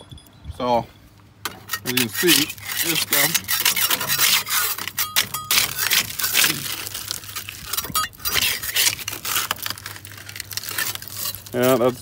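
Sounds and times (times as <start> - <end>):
paint scraped off steel: 1.5 - 9.6.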